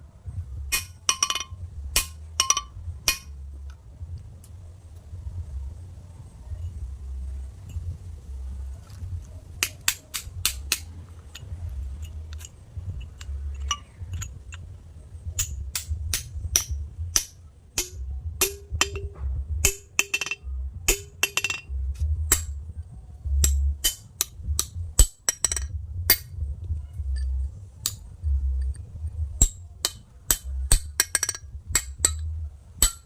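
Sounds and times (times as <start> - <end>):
low rumble: 0.0 - 32.9
hammer and chisel chipping stone: 9.6 - 11.4, 29.4 - 33.0.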